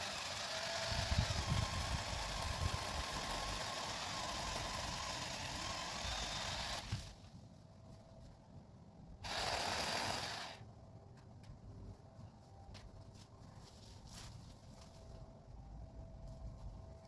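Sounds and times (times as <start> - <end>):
chainsaw cutting wood: 0.0 - 7.2, 9.2 - 10.6.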